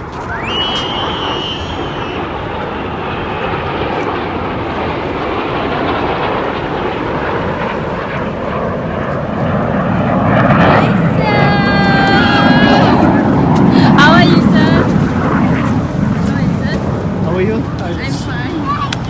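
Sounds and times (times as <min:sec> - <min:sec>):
faint high whine: 0:00.0 - 0:03.8
aircraft engine rush: 0:00.0 - 0:19.0.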